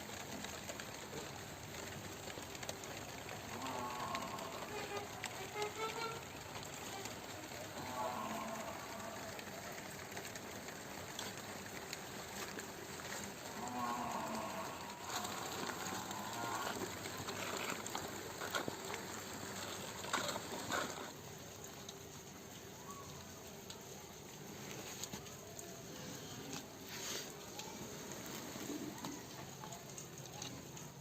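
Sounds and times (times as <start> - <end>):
cattle mooing: 3.5 - 5.1, 7.8 - 9.4, 13.5 - 17.7.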